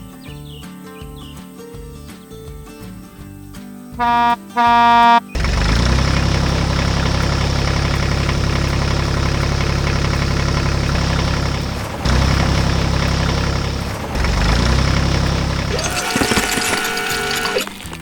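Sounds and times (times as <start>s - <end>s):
heavy machine engine chugging: 4.0s - 17.8s.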